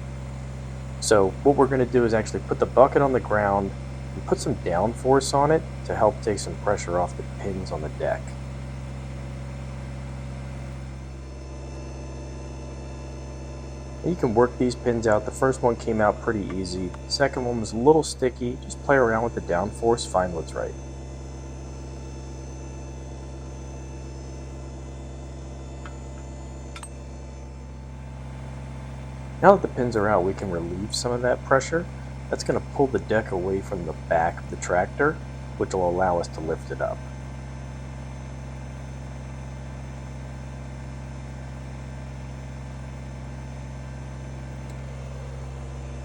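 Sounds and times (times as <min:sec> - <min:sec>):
tractor diesel engine humming: 0:00.0 - 0:46.0.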